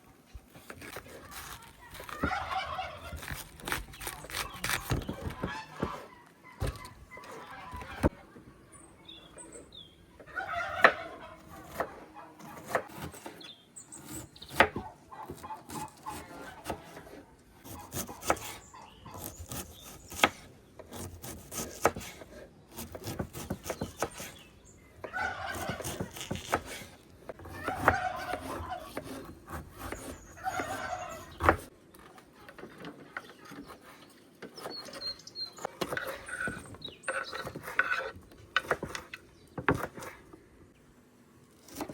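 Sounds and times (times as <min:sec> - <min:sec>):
poultry calling: 0:02.2 - 0:03.3, 0:05.4 - 0:08.2, 0:10.2 - 0:12.5, 0:25.1 - 0:26.2, 0:27.6 - 0:29.0, 0:30.0 - 0:31.6.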